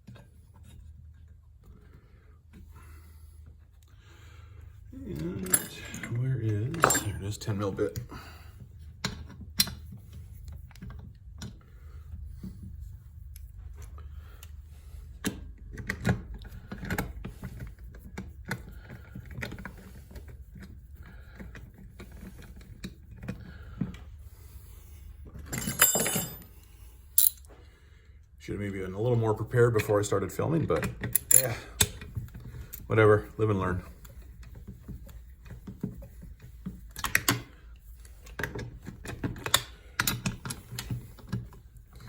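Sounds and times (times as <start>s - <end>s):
metal tools clicking and clinking: 5.1s - 7.5s, 25.5s - 26.5s, 27.2s - 27.5s, 30.8s - 32.9s
metal parts clattering: 5.3s - 7.4s, 25.5s - 26.5s, 27.2s - 27.5s.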